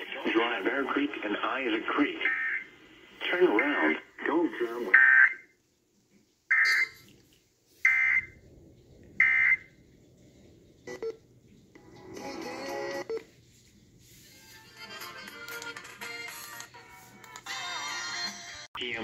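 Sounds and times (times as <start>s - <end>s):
mixed electronic tones: 1.9s - 3.8s, 4.9s - 5.5s, 6.5s - 7.1s, 9.2s - 9.7s
electronic alert beeps: 6.5s - 7.0s.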